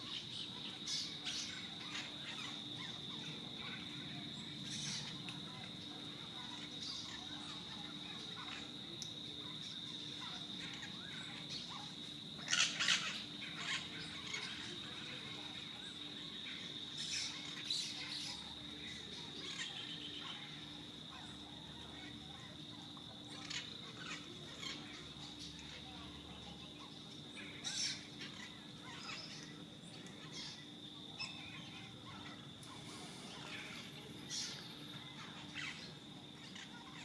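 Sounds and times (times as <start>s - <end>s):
high-pitched insect trill: 0.0s - 37.0s
parrots squawking: 10.2s - 15.4s, 31.2s - 37.0s.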